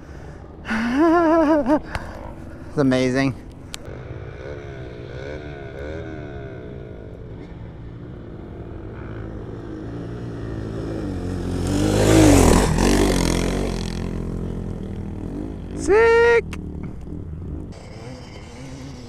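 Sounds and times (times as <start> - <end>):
wind and tyre noise: 0.0 - 19.0
motorbike passing by: 2.1 - 19.0
dirt bike engine revving: 3.8 - 19.0.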